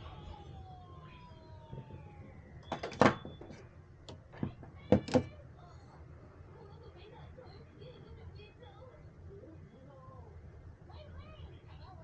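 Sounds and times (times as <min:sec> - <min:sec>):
hard parts knocking: 0:01.7 - 0:05.3.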